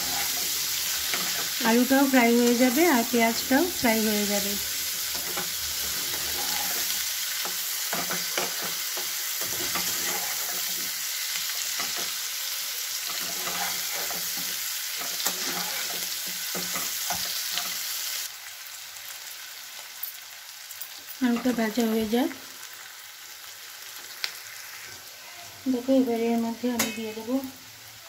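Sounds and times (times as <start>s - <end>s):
metal spatula scraping: 0.0s - 4.3s, 5.0s - 12.2s, 13.0s - 17.9s
food sizzling in oil: 0.0s - 28.0s.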